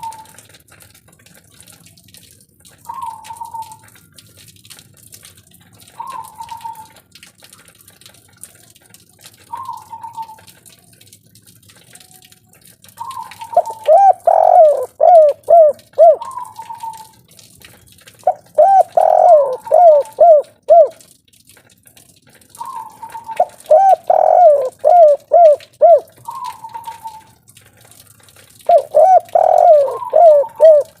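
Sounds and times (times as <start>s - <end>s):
dove cooing: 13.0s - 17.1s, 18.2s - 21.0s, 22.6s - 27.3s, 28.7s - 31.0s.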